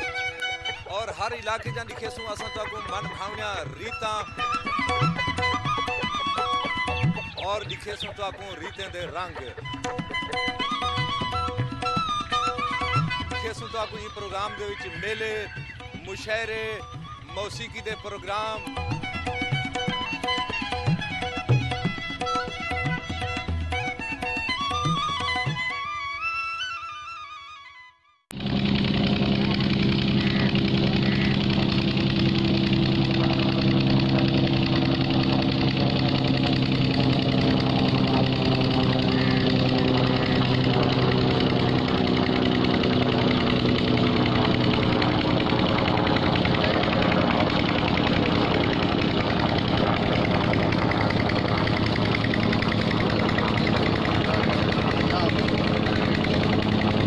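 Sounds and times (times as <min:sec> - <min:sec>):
helicopter engine and rotor drone: 0:00.0 - 0:25.8, 0:28.3 - 0:57.0
music: 0:00.0 - 0:28.2.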